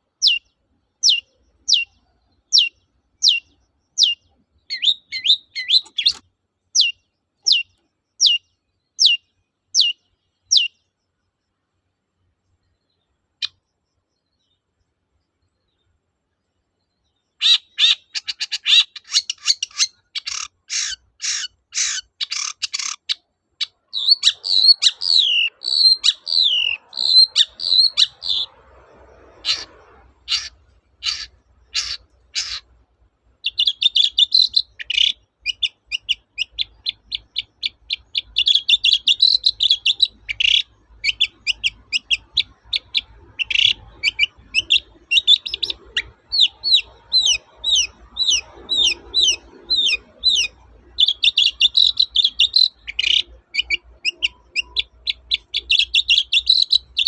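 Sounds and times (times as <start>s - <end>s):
shrike singing: 0.2s - 6.2s, 17.4s - 32.6s, 33.4s - 57.0s.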